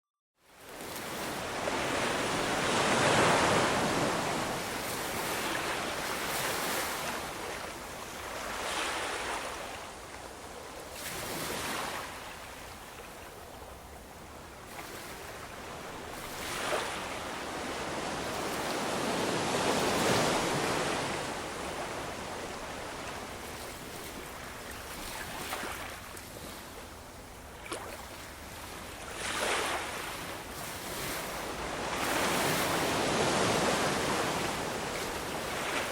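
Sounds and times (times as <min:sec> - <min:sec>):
ocean waves breaking: 0:00.7 - 0:09.8, 0:14.7 - 0:26.8, 0:27.6 - 0:35.9.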